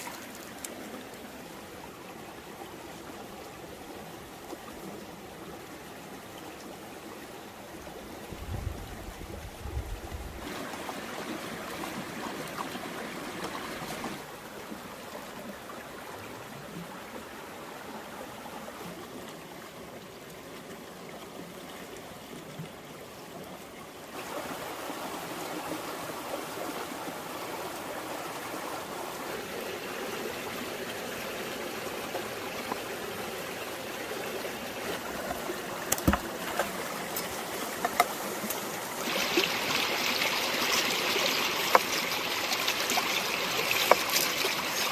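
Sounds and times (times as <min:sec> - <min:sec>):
stream water flowing: 0:00.0 - 0:44.9.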